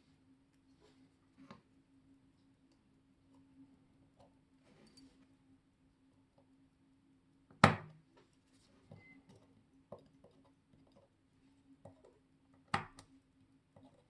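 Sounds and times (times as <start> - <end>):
sharp knocks on workbench: 7.6 - 7.9.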